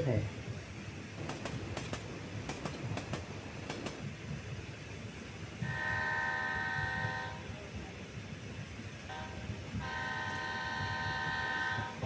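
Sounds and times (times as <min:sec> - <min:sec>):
train rumbling: 0:00.0 - 0:12.0
wheels clicking over rail joints: 0:01.1 - 0:04.2
locomotive horn: 0:05.6 - 0:07.5, 0:09.1 - 0:12.0.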